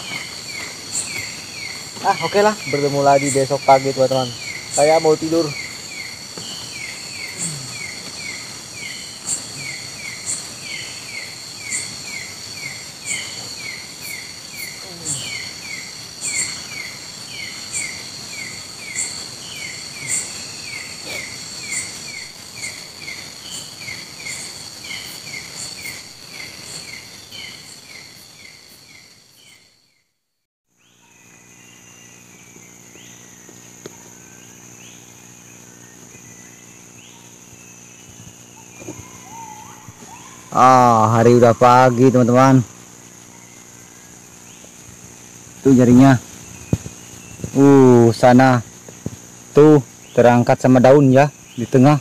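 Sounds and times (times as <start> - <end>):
high-pitched insect trills: 0.0 - 30.1, 30.7 - 52.0
rapid insect chirps: 0.0 - 52.0
steady low hum: 30.8 - 50.4
sharp insect clicks: 42.4 - 50.8.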